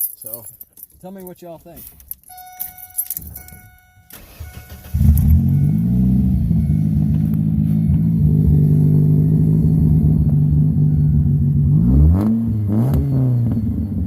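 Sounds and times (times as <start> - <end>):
car engine starting and idling: 2.1 - 14.0.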